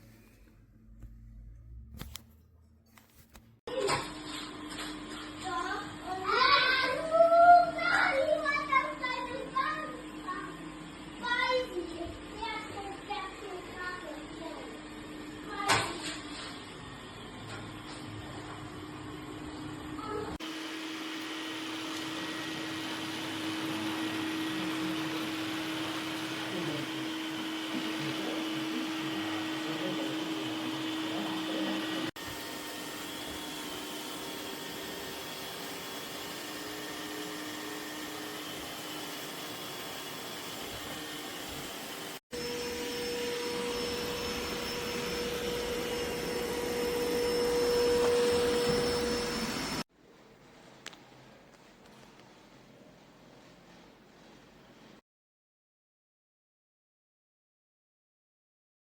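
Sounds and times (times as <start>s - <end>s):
robot vacuum suction motor: 20.3s - 49.8s.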